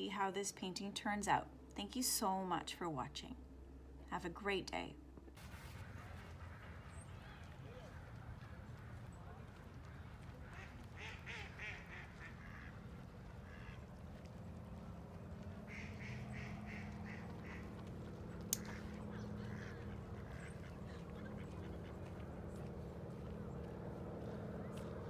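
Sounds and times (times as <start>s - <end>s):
low background hum: 0.0s - 25.0s
ducks quacking: 5.8s - 15.0s, 15.6s - 23.2s.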